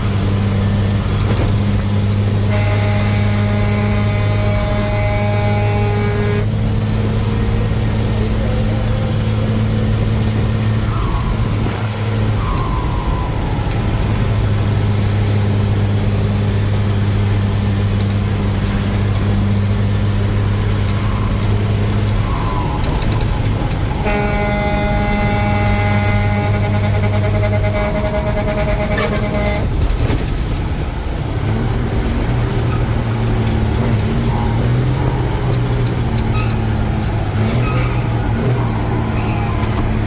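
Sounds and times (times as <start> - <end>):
vehicle engine humming: 0.0 - 40.0
sustained horn-like tone: 2.2 - 12.6, 23.9 - 29.9.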